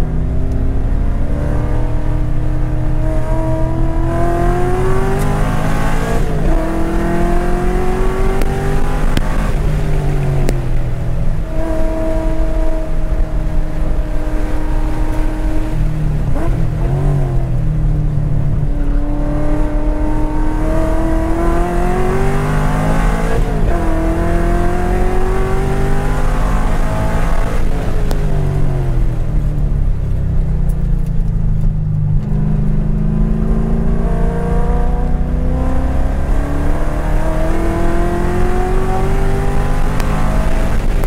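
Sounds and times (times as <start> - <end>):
car engine accelerating through gears: 0.0 - 41.0
road and wind noise: 0.0 - 41.0.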